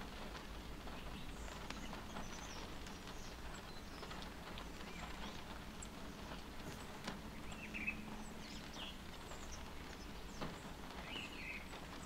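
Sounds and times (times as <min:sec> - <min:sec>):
rain pattering on a car: 0:00.0 - 0:12.0
birds chirping: 0:00.9 - 0:12.0.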